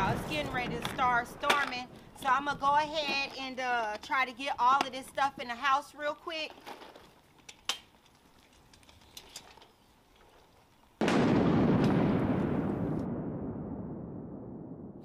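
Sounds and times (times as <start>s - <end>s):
thunder clap rumbling: 0.0s - 2.9s, 11.0s - 15.0s.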